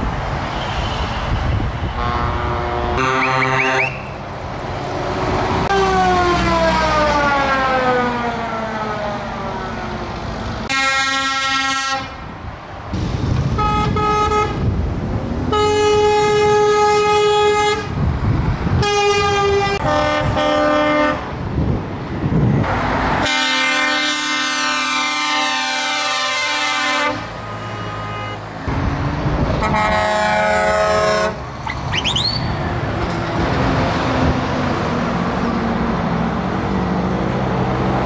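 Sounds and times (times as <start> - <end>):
truck engines passing: 0.0 - 38.0
truck air horn blasts: 1.8 - 4.2, 10.7 - 12.2, 13.5 - 14.6, 15.5 - 18.0, 18.8 - 21.3, 23.2 - 28.4, 29.6 - 31.4.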